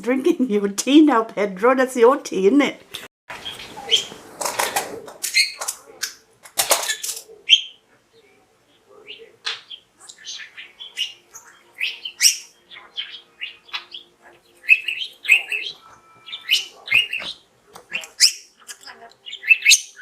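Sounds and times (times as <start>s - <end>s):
budgerigar chattering: 3.4s - 4.2s, 9.1s - 20.0s.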